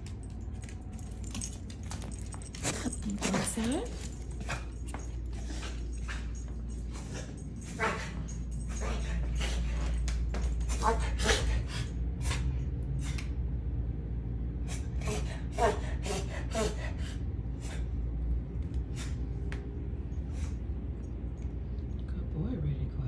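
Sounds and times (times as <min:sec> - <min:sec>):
dog coughing: 0:15.0 - 0:17.1.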